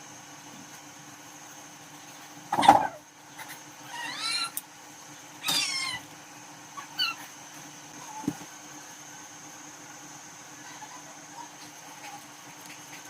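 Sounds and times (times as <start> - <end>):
cat chirp: 5.4 - 6.0.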